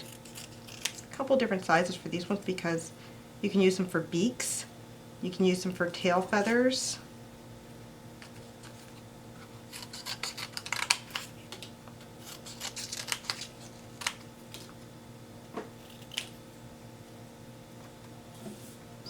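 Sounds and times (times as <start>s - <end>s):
scissors snipping paper: 0.0s - 1.1s, 9.7s - 14.8s.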